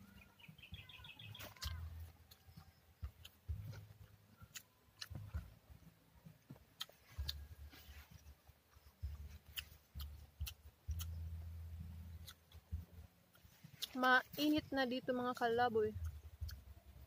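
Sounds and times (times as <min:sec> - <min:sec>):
person chewing: 0:01.3 - 0:05.6, 0:06.2 - 0:14.1.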